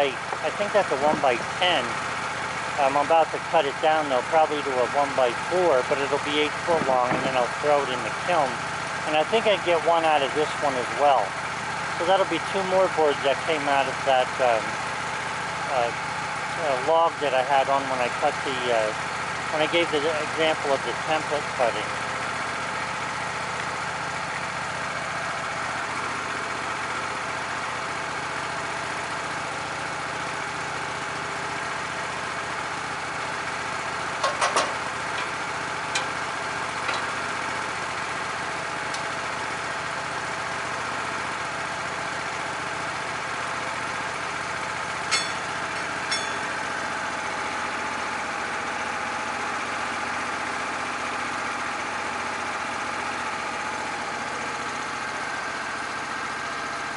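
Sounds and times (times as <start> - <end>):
engine idling: 0.0 - 56.9
short knocks or clanks: 6.8 - 7.4, 34.2 - 36.2.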